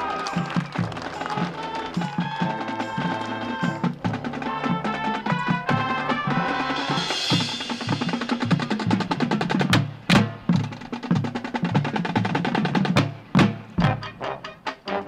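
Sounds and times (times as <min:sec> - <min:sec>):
snare drum rolls: 0:00.0 - 0:15.0.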